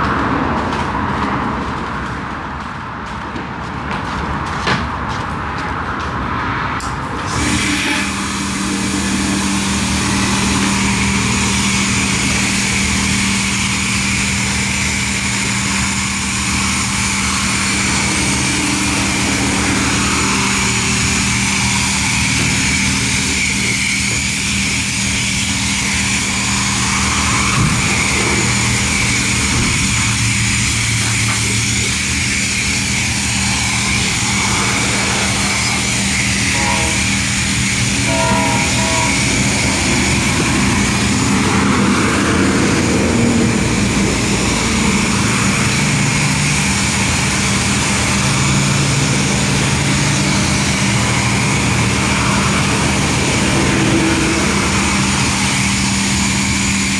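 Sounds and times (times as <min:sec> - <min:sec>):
loud machine hiss: 0:07.1 - 0:56.9
machine low hum: 0:07.3 - 0:55.5.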